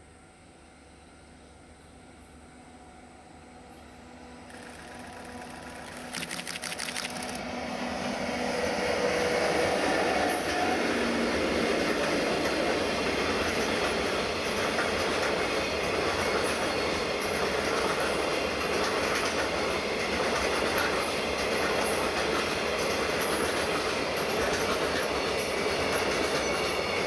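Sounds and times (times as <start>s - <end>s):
electric locomotive: 0.0s - 27.0s
rapid clicking: 4.5s - 7.4s
train wagons rumbling and clattering: 9.0s - 27.0s.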